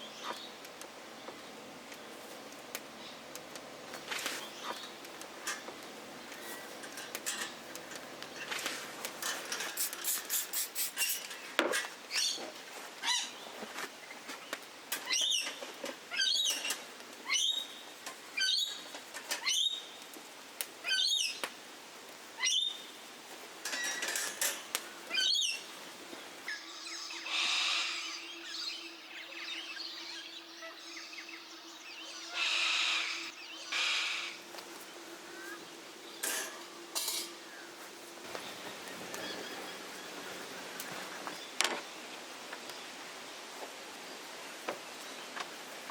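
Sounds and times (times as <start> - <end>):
bird sweeping calls: 26.5 - 28.8, 32.1 - 34.4.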